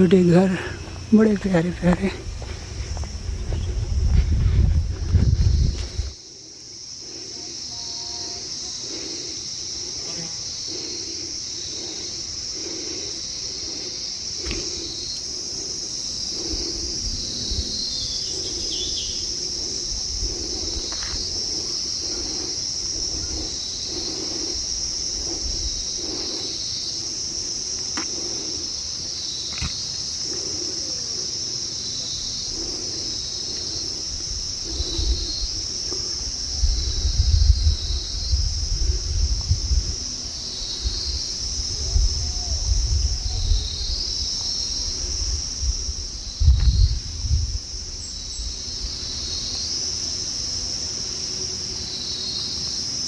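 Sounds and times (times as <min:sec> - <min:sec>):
insect chorus drone: 0:00.0 - 0:53.0
low rumble with bumps: 0:02.2 - 0:06.2.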